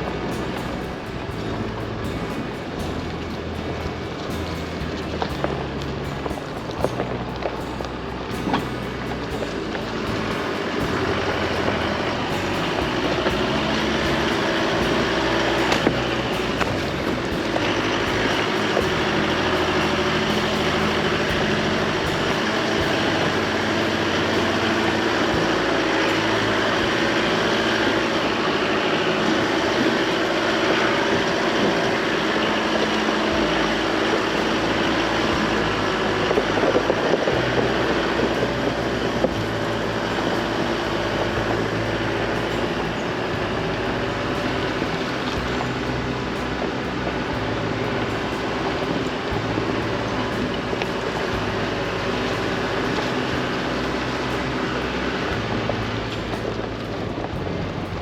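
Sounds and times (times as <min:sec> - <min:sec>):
engine hum: 0:00.0 - 0:58.0
tyre and road noise: 0:00.0 - 0:58.0.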